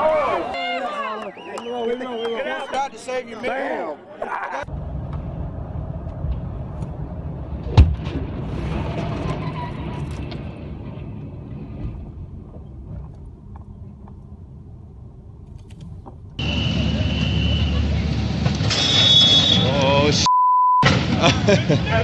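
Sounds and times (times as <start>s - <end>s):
vehicle low rumble: 4.7s - 20.3s
noise burst with high tone: 16.4s - 20.3s
loud bang: 20.8s - 21.7s.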